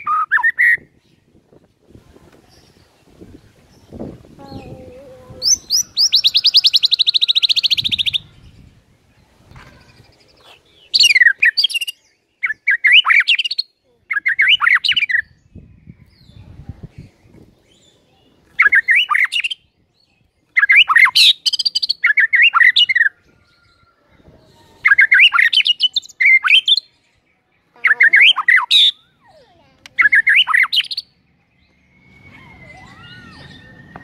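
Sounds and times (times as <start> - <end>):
bird whistling and chirping: 0.0 - 0.9, 5.4 - 8.4, 10.9 - 15.4, 18.6 - 19.6, 20.5 - 23.8, 24.8 - 26.9, 28.0 - 29.2, 30.0 - 34.0.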